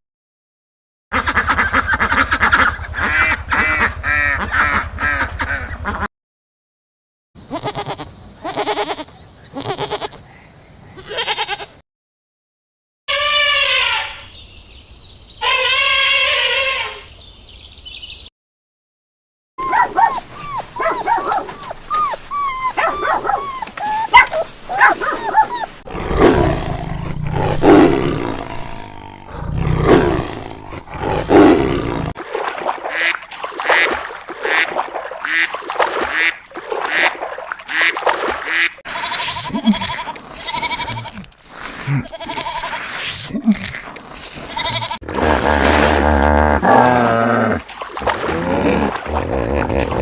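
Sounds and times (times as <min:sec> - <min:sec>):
dogs barking and growling: 0:19.6 - 0:32.3.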